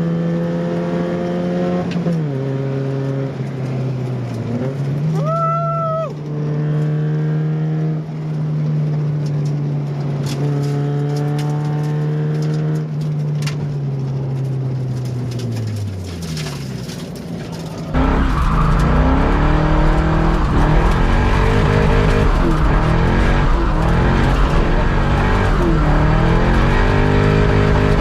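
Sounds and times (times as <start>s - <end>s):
car engine revving: 15.5s - 28.0s.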